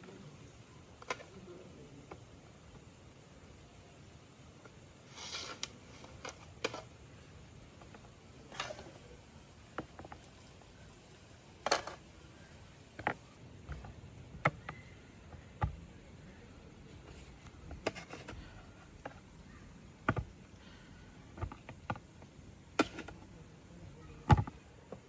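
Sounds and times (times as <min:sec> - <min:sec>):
objects clicking and knocking: 0:11.6 - 0:12.1, 0:16.9 - 0:19.4, 0:20.0 - 0:20.6, 0:21.3 - 0:23.3.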